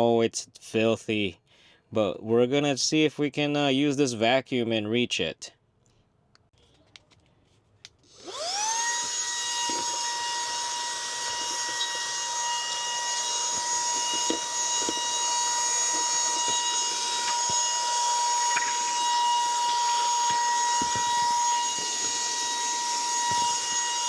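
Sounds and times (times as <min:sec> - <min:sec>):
handheld vacuum motor whining: 0:08.0 - 0:24.0.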